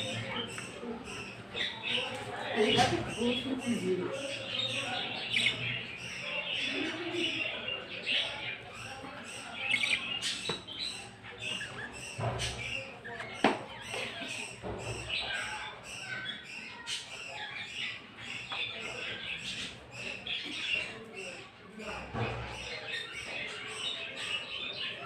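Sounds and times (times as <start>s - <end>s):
cage birds chirping: 0.0s - 25.0s.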